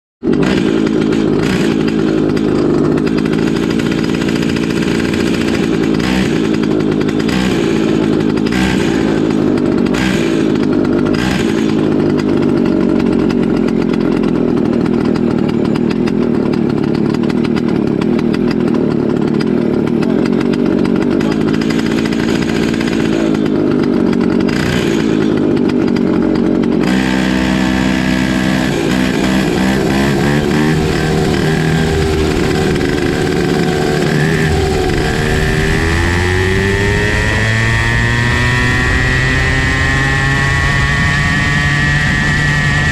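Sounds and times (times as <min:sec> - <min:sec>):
two-stroke kart engine running: 0:00.2 - 0:42.9.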